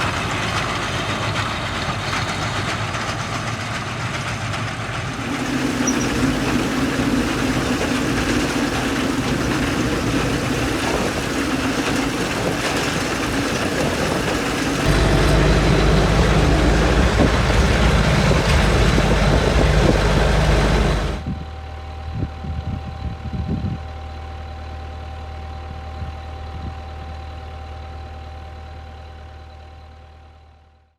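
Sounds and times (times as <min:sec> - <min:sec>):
tractor diesel engine running: 0:00.0 - 0:21.3
baler machinery clattering: 0:02.0 - 0:21.2.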